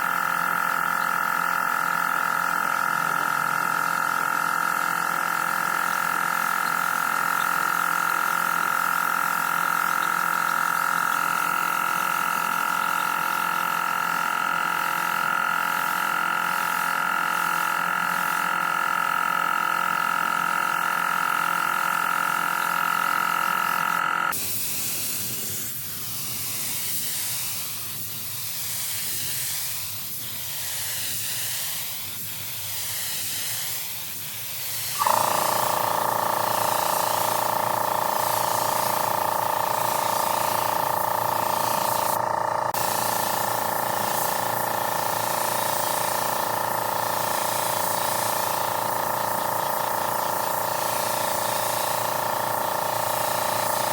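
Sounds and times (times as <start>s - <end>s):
workshop machine whine: 0.0s - 26.1s, 34.8s - 53.9s
loud air hiss: 24.4s - 33.9s.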